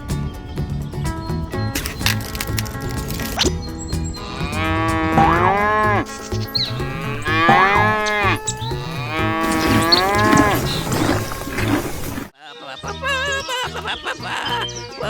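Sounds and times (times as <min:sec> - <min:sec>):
background music: 0:00.0 - 0:15.0
cow mooing: 0:04.2 - 0:12.3.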